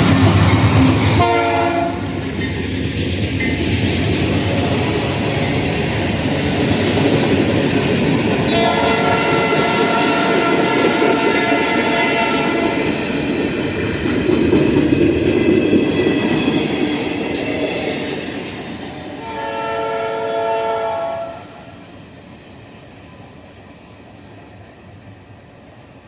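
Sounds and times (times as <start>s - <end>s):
train wheels rumbling on rails: 0.0s - 26.0s
locomotive air horn: 1.2s - 2.1s, 8.5s - 12.8s, 19.2s - 21.7s.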